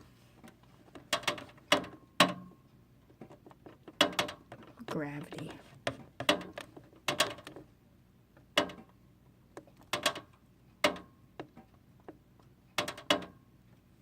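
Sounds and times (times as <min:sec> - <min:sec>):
fan clicking and knocking: 0:00.4 - 0:07.7, 0:08.4 - 0:09.0, 0:09.6 - 0:12.2, 0:12.8 - 0:13.4.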